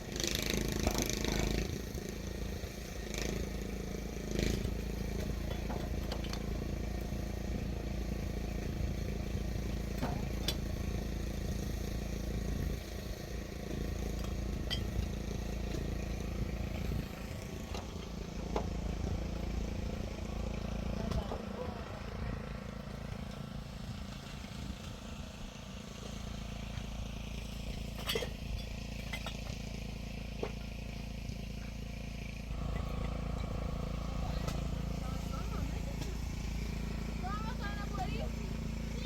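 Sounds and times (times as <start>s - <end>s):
engine humming: 0.0s - 39.0s.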